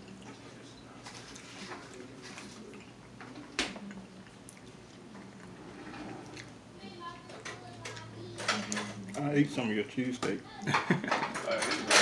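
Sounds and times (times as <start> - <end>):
person chewing food: 0.0 - 7.3.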